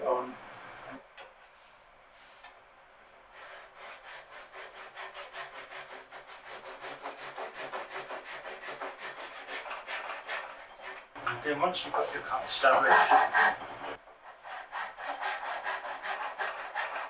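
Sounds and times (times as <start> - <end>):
hand saw cutting wood: 3.4 - 11.1, 11.9 - 13.6, 14.2 - 17.0.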